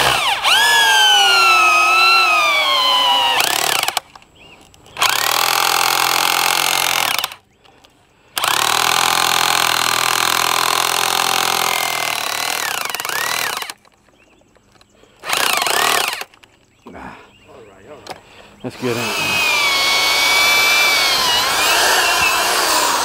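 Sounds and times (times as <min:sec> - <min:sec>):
power tool motor whine: 0:00.0 - 0:04.0, 0:05.0 - 0:07.4, 0:08.4 - 0:13.8, 0:15.2 - 0:16.3, 0:18.8 - 0:23.0.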